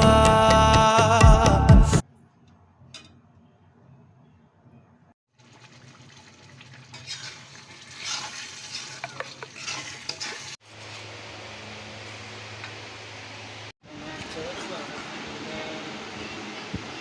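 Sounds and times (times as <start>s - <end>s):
vegetables sizzling in a pan: 5.9s - 13.7s
spatula scraping a pan: 6.9s - 11.1s.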